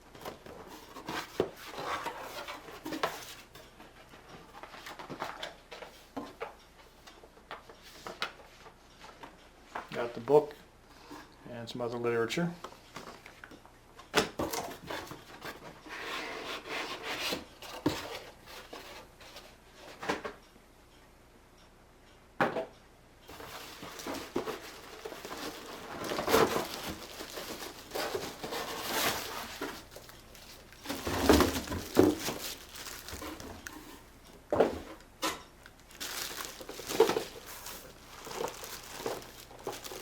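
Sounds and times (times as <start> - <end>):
cardboard box rustling: 23.3 - 34.9, 35.9 - 40.0.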